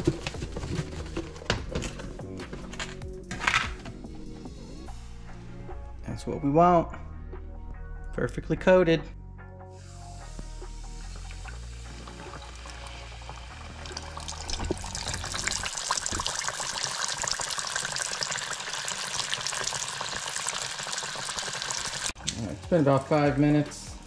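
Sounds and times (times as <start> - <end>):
fish frying in oil: 11.1 - 22.3.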